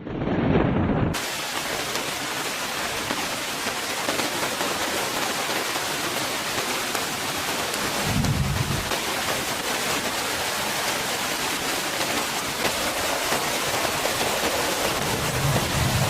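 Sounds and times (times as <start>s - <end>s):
low rumble: 0.0s - 1.2s, 8.0s - 8.9s
heavy rain falling: 0.0s - 16.0s.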